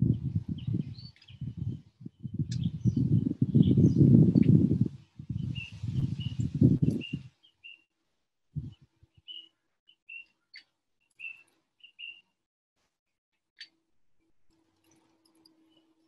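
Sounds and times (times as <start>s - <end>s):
birds chirping: 0.0s - 7.9s, 8.6s - 12.2s
downward-sweeping bird calls: 5.4s - 7.9s, 8.6s - 12.2s.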